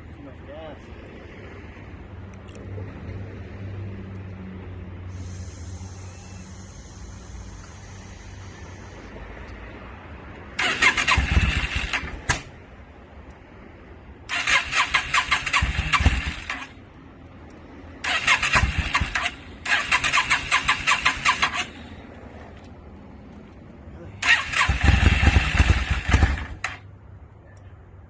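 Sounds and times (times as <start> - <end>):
motorcycle engine cranking: 10.6 - 12.5, 14.3 - 16.7, 18.0 - 21.9, 24.2 - 26.8.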